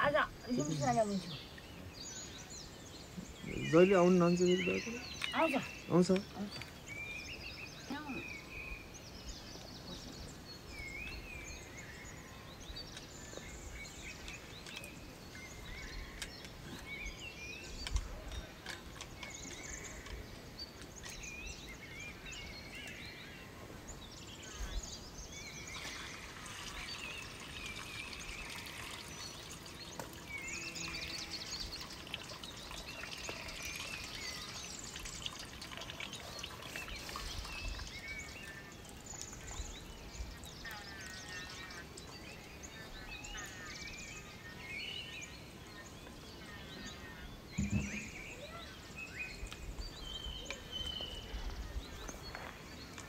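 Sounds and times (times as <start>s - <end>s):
small birds chirping: 0.0s - 53.0s
low thumps: 47.5s - 48.3s.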